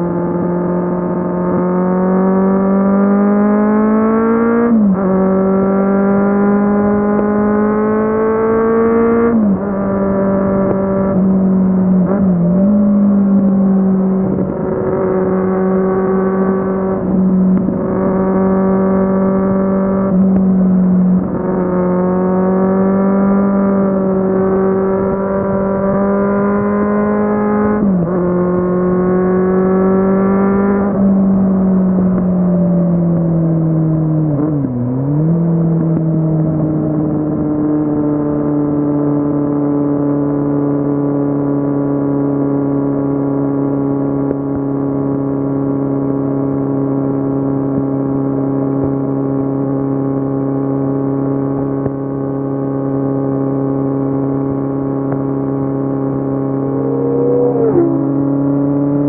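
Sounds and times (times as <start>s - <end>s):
motorcycle engine running: 53.1s - 59.0s.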